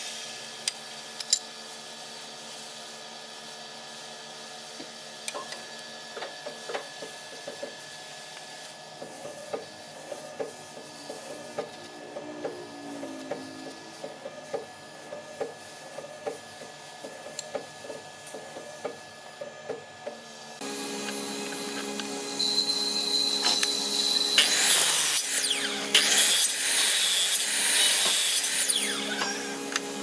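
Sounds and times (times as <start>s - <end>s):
machine hum: 10.0s - 15.9s, 20.6s - 30.0s.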